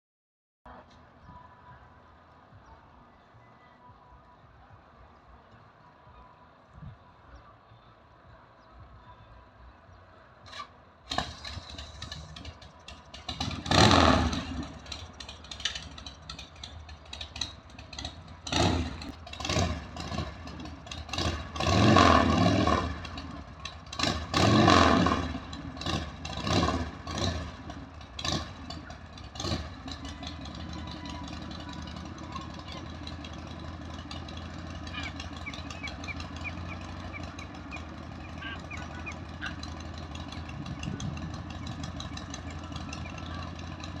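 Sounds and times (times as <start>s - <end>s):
motorcycle engine revving: 10.5s - 44.0s.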